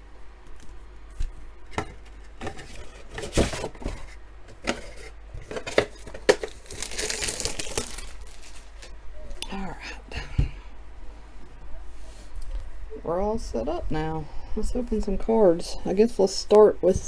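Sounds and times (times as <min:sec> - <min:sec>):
card packs rustling: 0:01.7 - 0:09.4.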